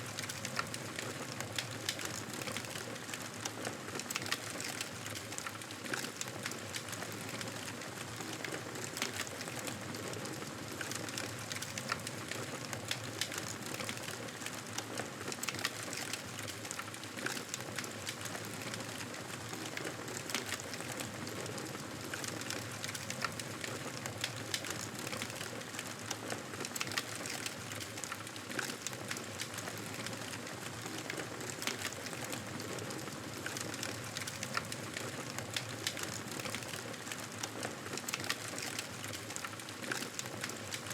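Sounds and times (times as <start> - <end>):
wood fire crackling: 0.1 - 40.9.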